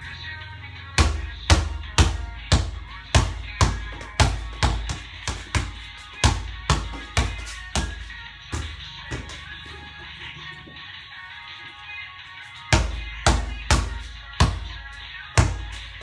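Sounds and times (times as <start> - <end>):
basketball bouncing on court: 1.0 - 9.8, 12.8 - 16.0.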